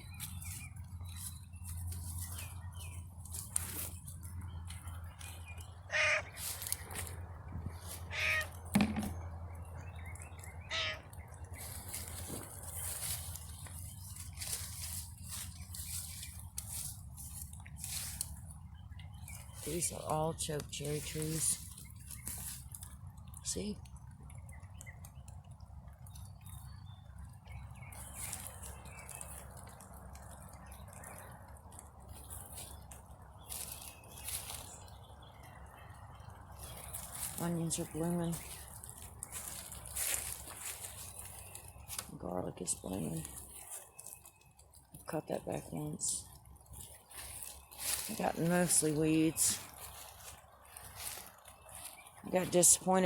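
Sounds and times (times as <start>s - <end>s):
crow cawing: 5.9s - 6.4s, 8.1s - 8.6s, 10.6s - 11.1s
rain dripping and pattering: 20.3s - 41.9s, 49.6s - 52.8s.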